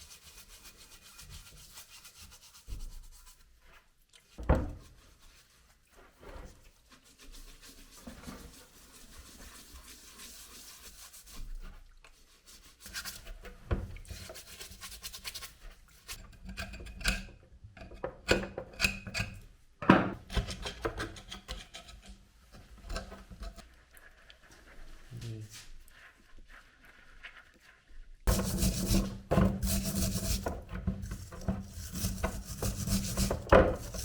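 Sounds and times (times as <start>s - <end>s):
hand scraping and filing: 20.2s - 34.0s.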